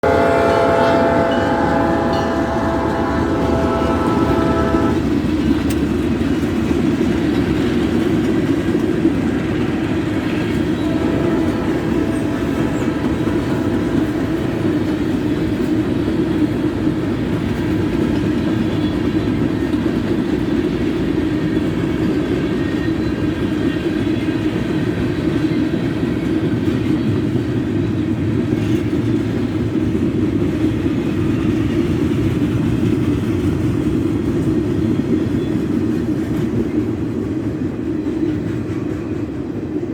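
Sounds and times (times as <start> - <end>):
train horn blast: 0.0 - 5.1, 10.4 - 15.0
train rumbling on rails: 0.0 - 39.9.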